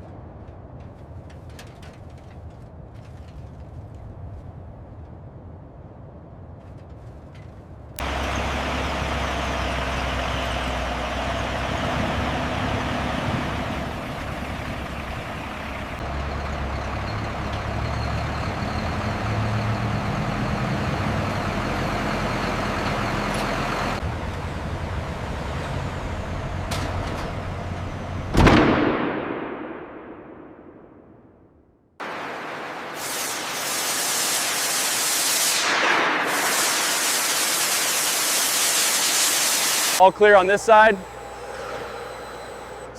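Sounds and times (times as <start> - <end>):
heavy vehicle engine running: 6.1 - 28.4, 36.0 - 42.9.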